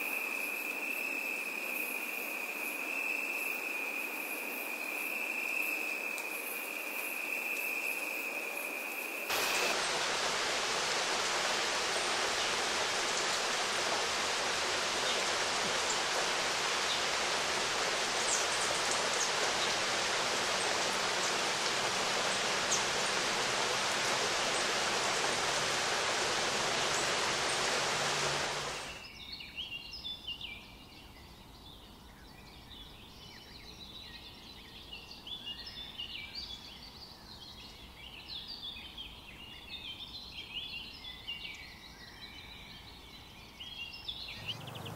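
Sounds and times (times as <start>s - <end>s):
small birds chirping faintly: 0.0s - 44.9s
loud even hiss: 1.6s - 29.0s, 44.3s - 44.9s.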